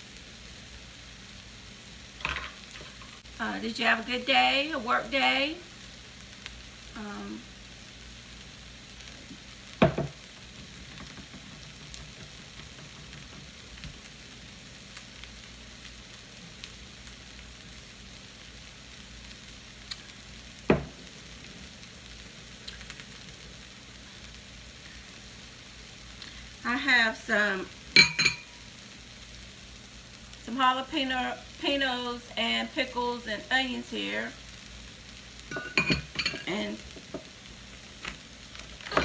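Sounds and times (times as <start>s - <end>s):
food sizzling in a frying pan: 0.0s - 39.0s
sharp knocks: 9.8s - 10.2s, 20.7s - 21.0s.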